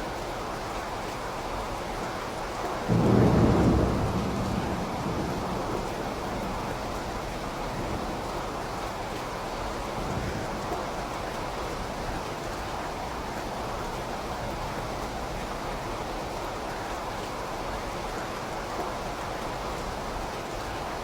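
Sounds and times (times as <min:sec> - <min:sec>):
steady rain: 0:00.0 - 0:21.0
thunder rumbling: 0:02.9 - 0:09.1.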